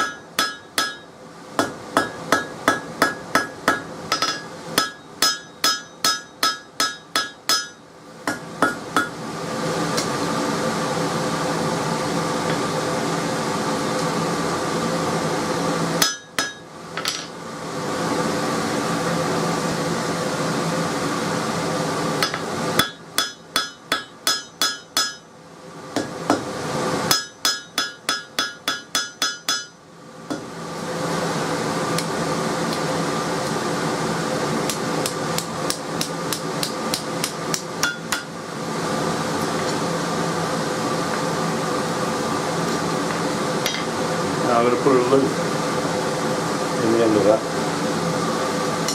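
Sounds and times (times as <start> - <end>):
hammer striking steel on anvil: 0.0 - 9.2, 16.0 - 17.3, 22.2 - 25.3, 26.0 - 26.5, 27.1 - 30.5, 34.7 - 38.3.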